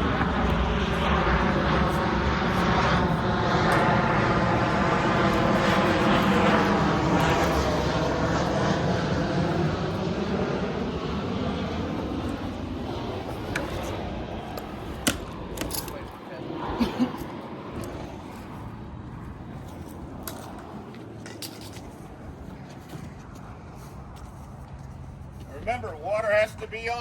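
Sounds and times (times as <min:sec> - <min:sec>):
airplane flying over: 0:00.0 - 0:27.0.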